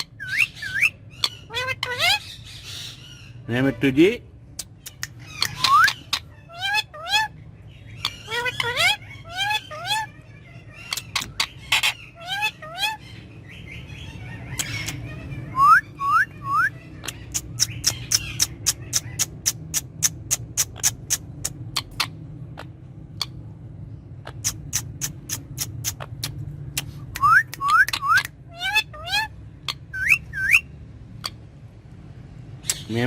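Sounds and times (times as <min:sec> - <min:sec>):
parakeet sharp chirps: 0:00.0 - 0:03.4, 0:04.6 - 0:23.4, 0:24.2 - 0:31.5
parakeet rising whistles: 0:05.5 - 0:06.1, 0:27.1 - 0:28.3, 0:29.9 - 0:30.7.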